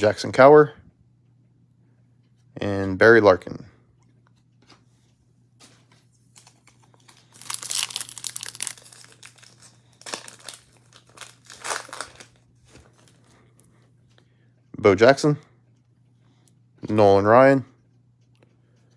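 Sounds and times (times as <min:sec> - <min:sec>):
foil wrapper crinkling and tearing: 0:06.3 - 0:13.4.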